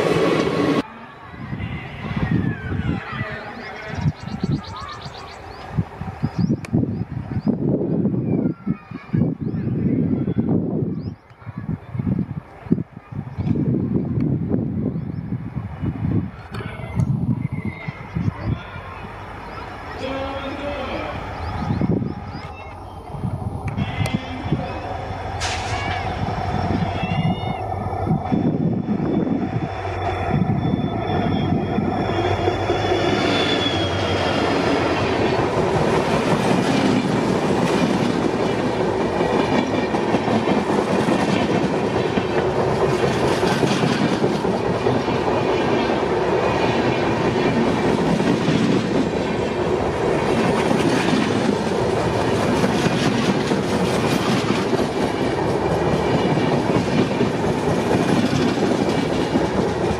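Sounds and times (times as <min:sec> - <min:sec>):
diesel locomotive engine hum: 0:00.0 - 0:08.5, 0:12.1 - 0:59.9
high wheel tone: 0:18.9 - 0:40.8
clickety-clack of train wheels: 0:32.9 - 0:59.9.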